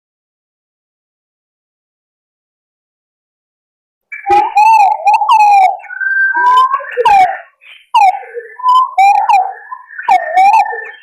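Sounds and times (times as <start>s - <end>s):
pigeons calling with wavering whistles: 4.1s - 11.0s.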